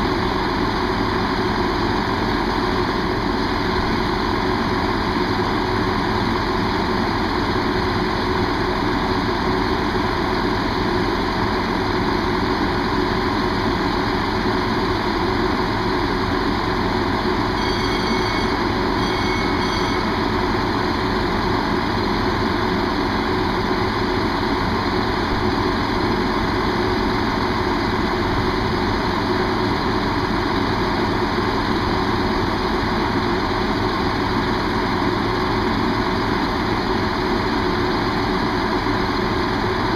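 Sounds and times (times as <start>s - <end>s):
diesel train engine idling: 0.0s - 39.9s
brief high-pitched tone: 17.5s - 20.4s.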